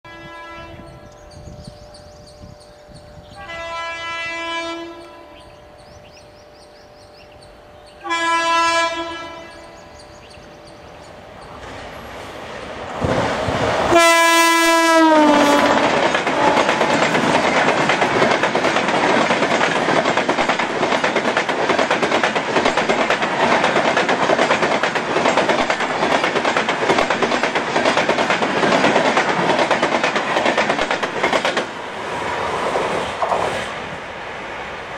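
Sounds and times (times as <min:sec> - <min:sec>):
two-tone locomotive horn: 0:00.0 - 0:01.2, 0:03.3 - 0:05.7, 0:07.9 - 0:09.8, 0:13.9 - 0:17.0.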